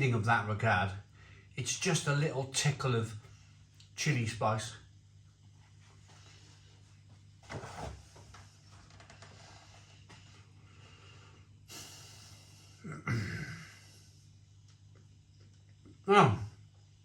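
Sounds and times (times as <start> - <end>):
low room hum: 0.0 - 17.0
noisy breaths or sniffs: 10.6 - 12.8.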